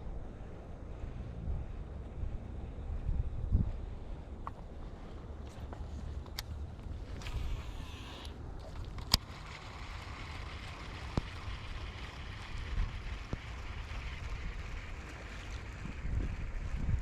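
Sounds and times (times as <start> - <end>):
wind buffeting microphone: 0.0 - 5.9, 10.6 - 17.0.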